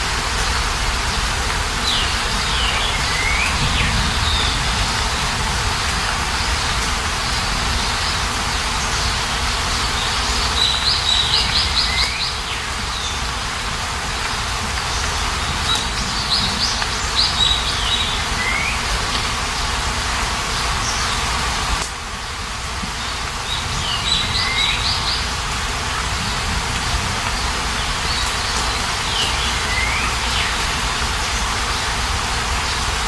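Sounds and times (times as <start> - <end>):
hiss of rain or water: 0.0 - 33.0
small birds singing: 0.2 - 33.0.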